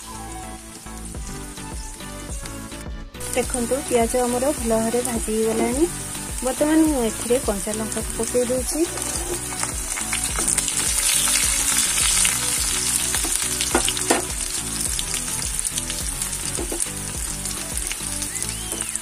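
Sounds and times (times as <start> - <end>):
onions sizzling in hot oil: 3.2 - 19.0
spatula stirring: 8.7 - 14.4.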